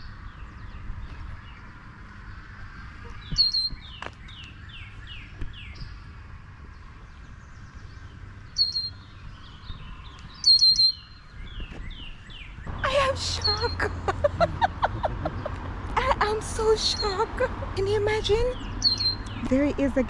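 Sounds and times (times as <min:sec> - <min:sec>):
songbird chirping: 0:00.0 - 0:20.0
faint bird chirps: 0:02.9 - 0:06.0, 0:08.5 - 0:13.9, 0:18.5 - 0:19.5
steady background hum: 0:12.1 - 0:20.0.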